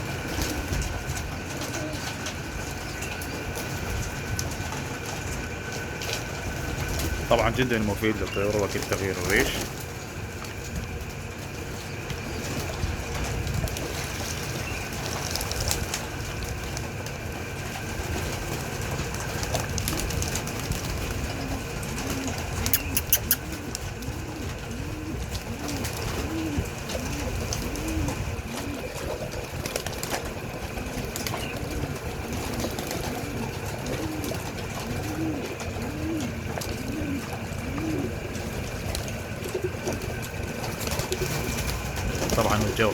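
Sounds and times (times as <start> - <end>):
pigeons cooing: 0.0 - 42.9
sharp clicks: 22.7 - 23.4.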